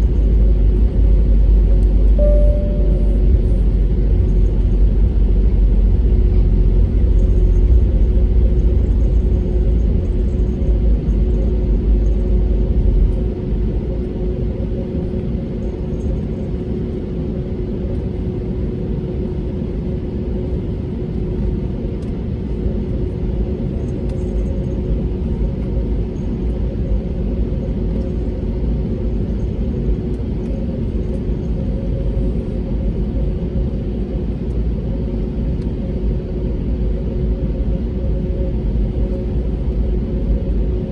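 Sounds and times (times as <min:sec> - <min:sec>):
aircraft cabin rumble: 0:00.0 - 0:40.9.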